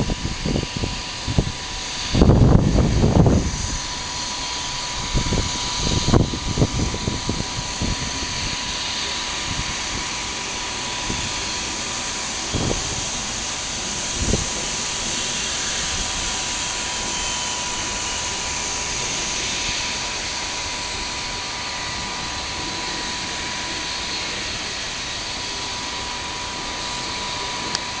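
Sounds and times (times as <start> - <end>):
wind thumps on microphone: 0.0 - 4.0, 4.9 - 8.6, 12.5 - 13.1
jet engines whining: 0.0 - 28.0.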